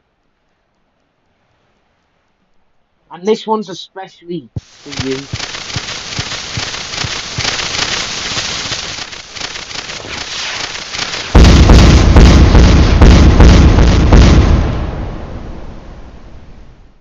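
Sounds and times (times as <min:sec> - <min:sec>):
firework crackling and fizzing: 0:04.6 - 0:15.6
firework bangs and booms: 0:04.6 - 0:16.9.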